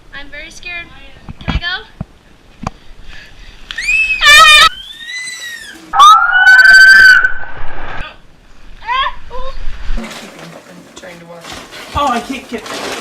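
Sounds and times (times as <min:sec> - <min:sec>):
person screaming: 0:06.0 - 0:07.3.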